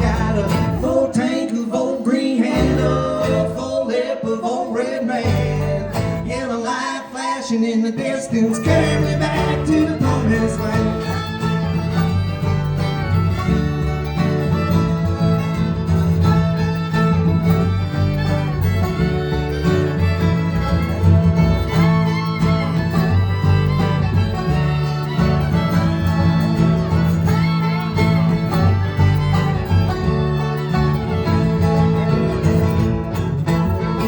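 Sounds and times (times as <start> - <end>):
fiddle lead with gliding notes: 0.0 - 1.0, 8.5 - 34.0
low bass line: 0.0 - 1.0, 5.3 - 6.4, 8.6 - 34.0
banjo: 0.0 - 1.2, 2.4 - 3.6, 5.2 - 6.4, 8.4 - 34.0
strummed guitar: 0.0 - 4.1, 5.2 - 6.6, 8.0 - 34.0.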